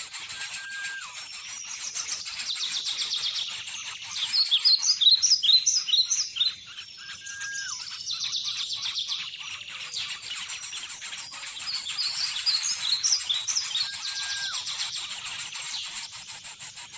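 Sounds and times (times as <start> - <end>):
held bird whistle: 0.0 - 3.6, 7.0 - 8.0, 9.8 - 16.9
birds chirping: 0.0 - 16.9
falling whistled bird notes: 0.1 - 1.3, 7.0 - 8.0, 12.0 - 14.8.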